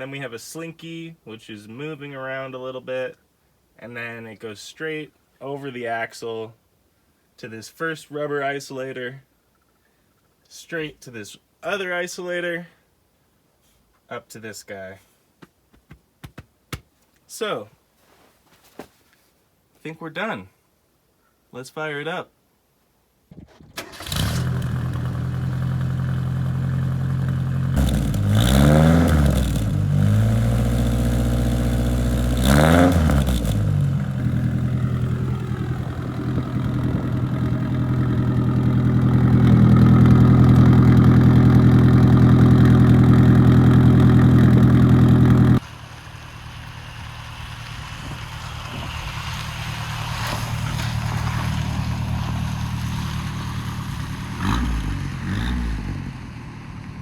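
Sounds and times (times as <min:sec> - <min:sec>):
car engine revving and idling: 0:24.0 - 0:57.0.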